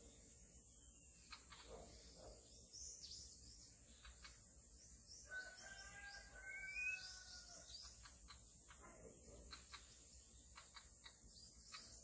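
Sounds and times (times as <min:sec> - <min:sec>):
whistled bird song: 0:05.3 - 0:07.9.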